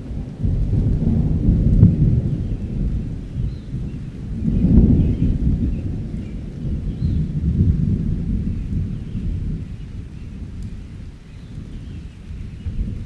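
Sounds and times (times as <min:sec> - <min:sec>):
steady rain: 0:00.0 - 0:13.0
thunder rumbling: 0:00.0 - 0:13.0.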